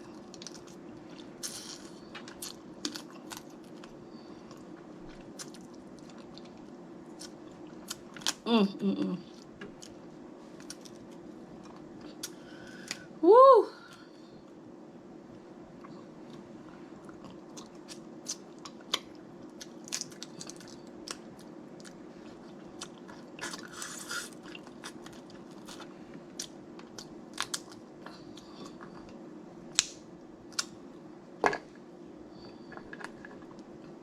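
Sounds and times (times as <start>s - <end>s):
steady low hum: 0.0s - 34.0s
close-up chewing: 17.0s - 29.2s.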